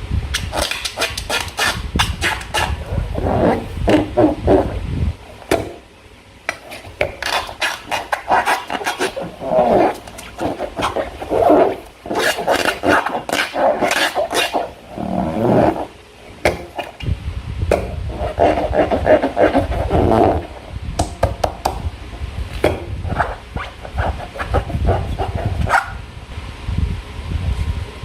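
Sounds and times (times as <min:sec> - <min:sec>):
slime squelching by hand: 0:06.5 - 0:15.9.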